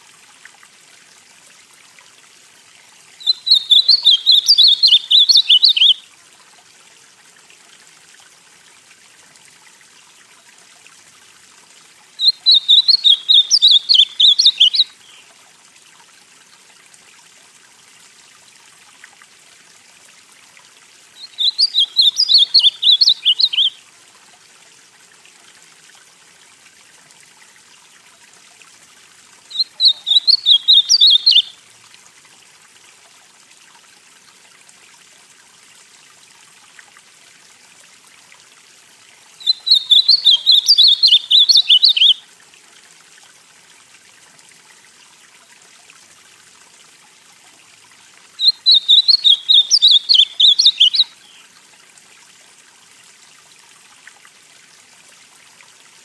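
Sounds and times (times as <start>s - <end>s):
faint steady hiss: 0.0s - 56.0s
bird singing high notes: 3.2s - 6.0s, 12.2s - 15.0s, 21.2s - 23.8s, 29.5s - 31.5s, 39.4s - 42.2s, 48.6s - 51.4s.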